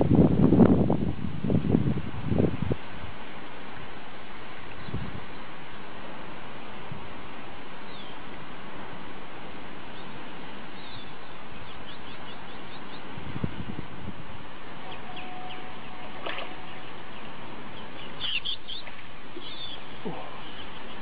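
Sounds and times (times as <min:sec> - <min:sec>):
background hiss: 0:00.0 - 0:21.0
small birds chirping: 0:07.8 - 0:08.2, 0:09.9 - 0:13.2, 0:14.8 - 0:21.0.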